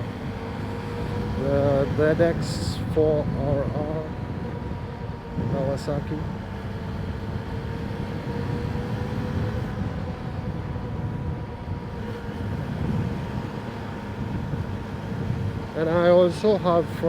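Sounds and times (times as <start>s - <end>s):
motorcycle engine: 0.0s - 4.7s
wind noise in helmet: 0.0s - 17.0s.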